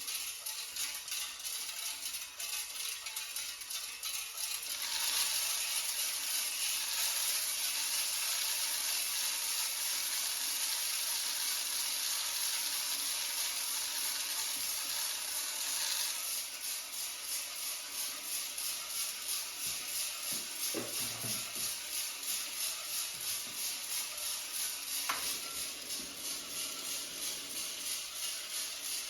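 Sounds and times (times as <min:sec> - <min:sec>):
coffee roaster exhaust hissing: 0:00.0 - 0:29.0.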